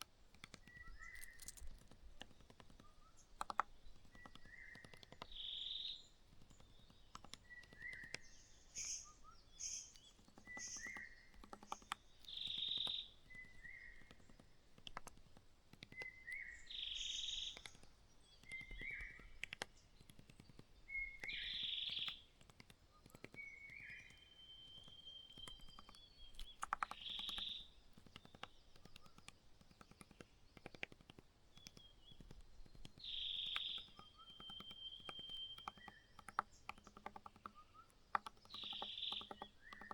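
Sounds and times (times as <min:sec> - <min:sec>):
faint rapid clicking: 0:00.0 - 0:39.9
small birds chirping: 0:00.0 - 0:39.9.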